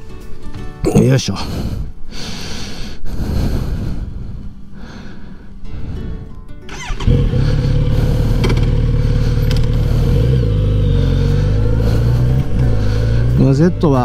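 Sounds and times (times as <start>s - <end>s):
motorcycle engine idling: 6.7s - 13.5s
starter whine: 6.7s - 14.0s.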